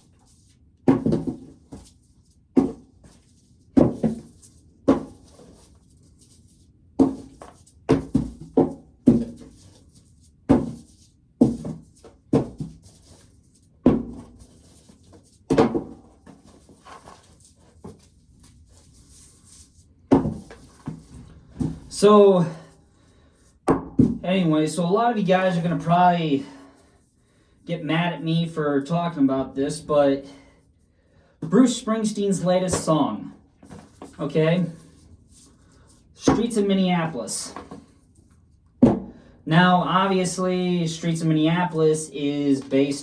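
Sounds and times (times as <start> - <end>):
corncobs thunking into a pail: 0.9 - 1.5.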